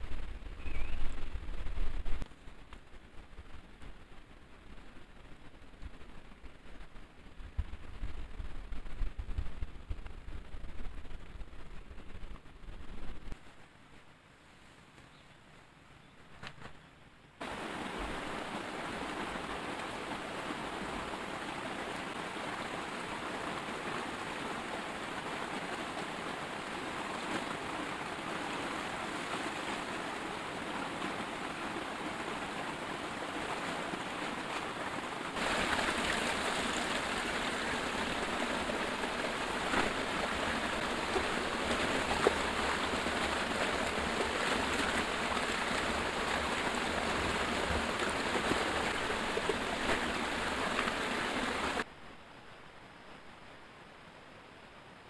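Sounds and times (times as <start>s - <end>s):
heavy rain falling: 17.4s - 51.9s.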